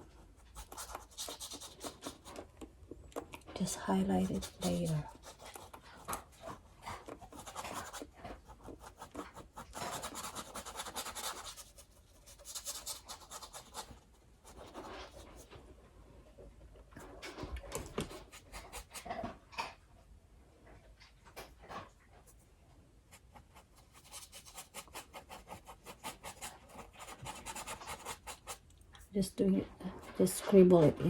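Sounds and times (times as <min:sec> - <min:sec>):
paintbrush scrubbing on canvas: 0:00.0 - 0:02.5, 0:03.6 - 0:15.5, 0:23.1 - 0:28.7.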